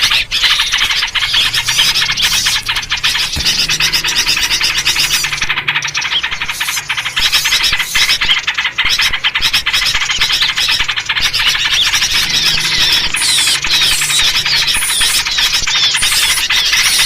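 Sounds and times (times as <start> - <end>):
songbirds chattering: 0.0 - 17.0.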